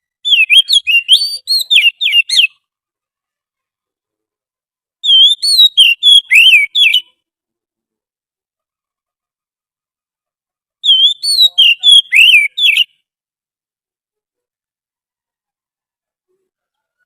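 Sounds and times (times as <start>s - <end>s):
bird song whistled notes: 0.0s - 2.6s, 5.0s - 7.2s, 10.8s - 13.1s.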